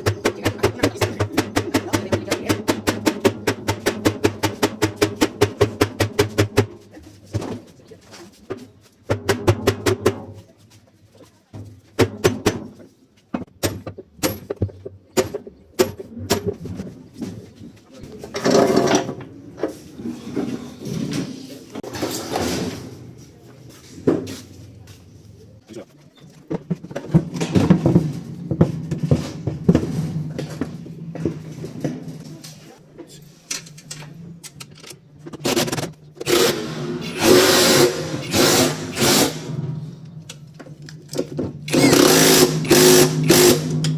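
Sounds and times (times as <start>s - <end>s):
hand tools knocking on metal: 0.0s - 6.8s, 40.6s - 43.9s.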